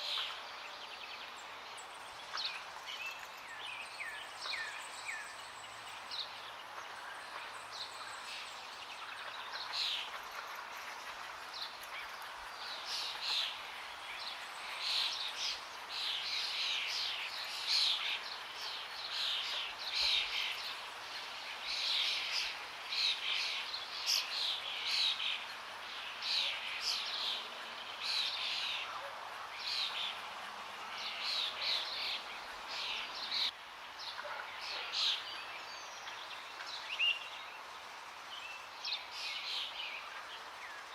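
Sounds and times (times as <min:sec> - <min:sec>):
flowing water: 0:00.0 - 0:40.9
forest birds chirping: 0:00.0 - 0:40.9.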